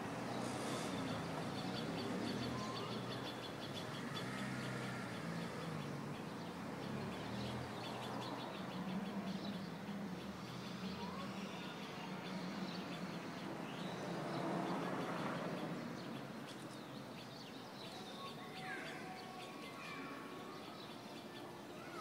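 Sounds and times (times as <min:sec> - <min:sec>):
small birds chirping: 0:00.1 - 0:22.0.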